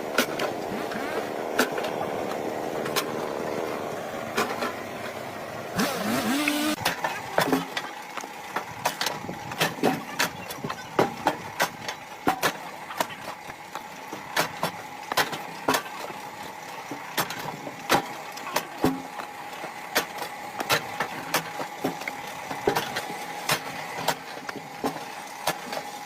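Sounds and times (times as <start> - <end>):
motor running: 5.6 - 26.0.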